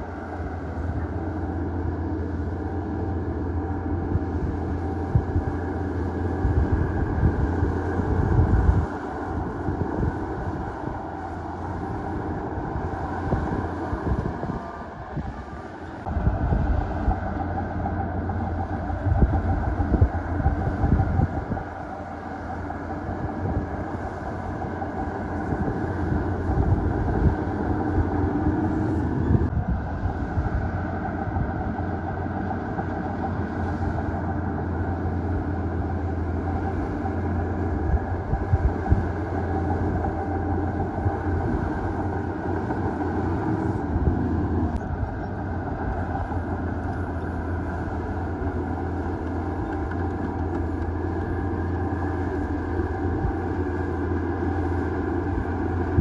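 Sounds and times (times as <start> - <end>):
heavy diesel machinery engine: 0.0 - 56.0.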